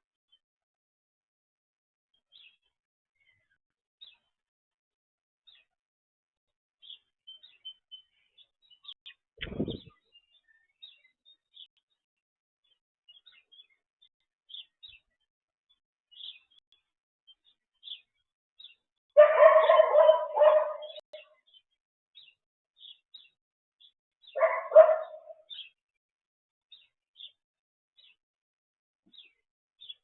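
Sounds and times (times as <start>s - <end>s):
small birds chirping: 2.1s - 4.5s, 5.4s - 5.8s, 6.8s - 26.0s, 26.7s - 28.2s, 29.0s - 30.0s
dog barking: 19.2s - 21.0s, 24.4s - 25.5s.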